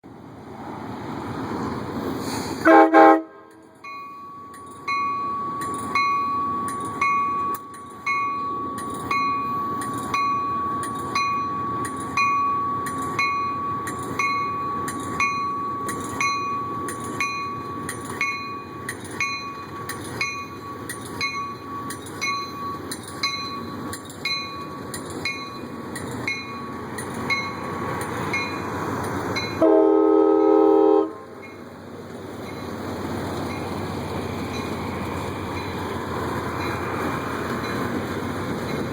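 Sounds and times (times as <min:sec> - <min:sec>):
train rumble: 0:00.0 - 0:38.9
train horn blast: 0:02.6 - 0:03.7, 0:29.6 - 0:31.4
train bell ringing: 0:03.4 - 0:31.8, 0:32.4 - 0:33.8, 0:34.4 - 0:38.9.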